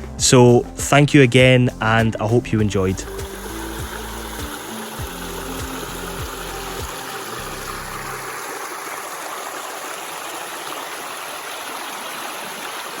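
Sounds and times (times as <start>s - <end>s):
background music: 0.0s - 8.4s
stream water rushing: 2.9s - 13.0s.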